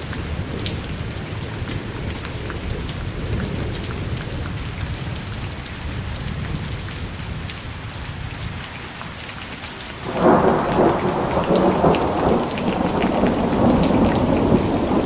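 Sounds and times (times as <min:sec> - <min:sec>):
heavy rain: 0:00.0 - 0:15.0
distant thunder rumbling: 0:10.0 - 0:15.0.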